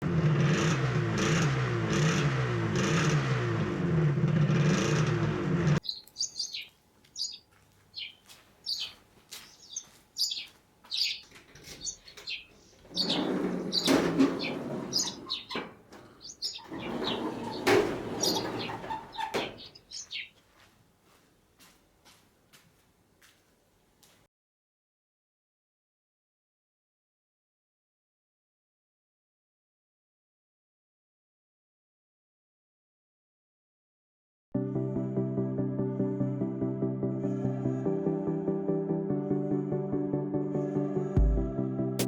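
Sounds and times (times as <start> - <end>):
motorcycle engine revving: 0.0 - 5.8
birds chirping: 5.8 - 20.4.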